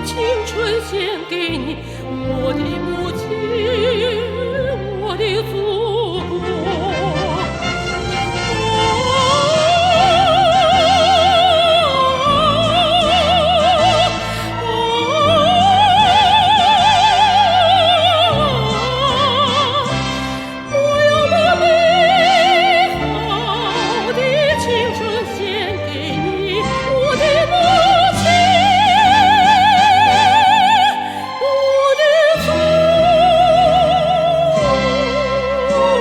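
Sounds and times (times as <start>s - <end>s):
instrumental accompaniment: 0.0s - 36.0s
woman singing opera: 0.0s - 36.0s.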